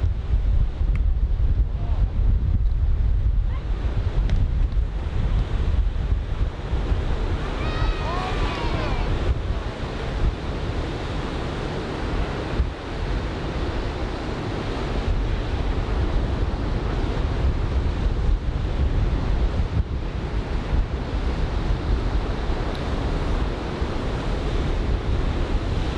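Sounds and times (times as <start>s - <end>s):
wind buffeting microphone: 0.0s - 25.9s
surf breaking on shore: 4.9s - 25.9s.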